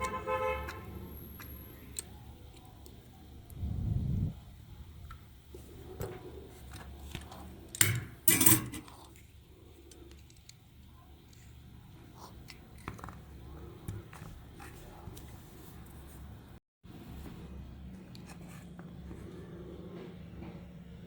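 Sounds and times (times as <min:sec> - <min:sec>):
small clicks taps and scrapes: 0:09.9 - 0:10.6.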